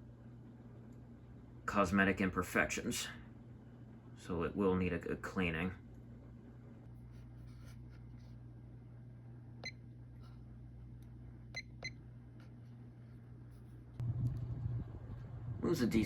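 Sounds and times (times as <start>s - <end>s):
ceiling fan motor humming: 0.0s - 16.0s.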